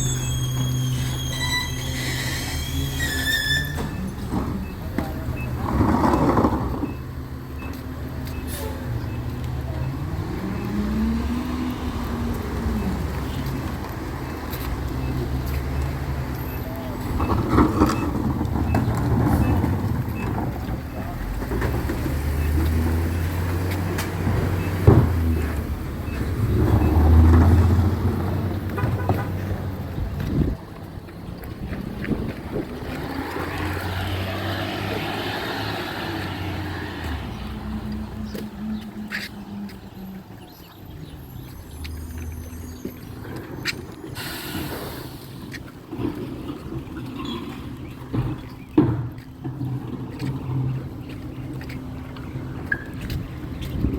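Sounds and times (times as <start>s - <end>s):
broad hissing noise: 44.2s - 45.4s.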